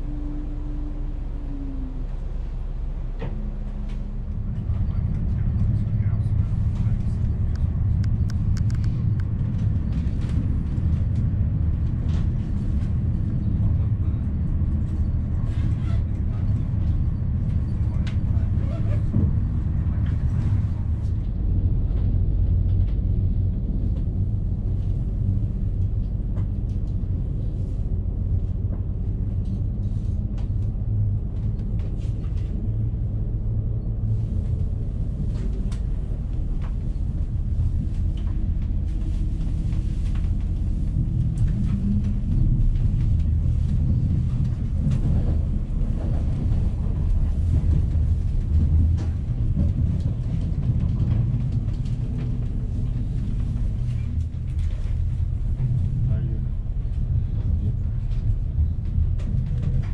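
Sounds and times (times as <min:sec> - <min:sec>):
train running low rumble: 0:00.0 - 0:59.9
scattered clicks and rattles: 0:06.4 - 0:13.0.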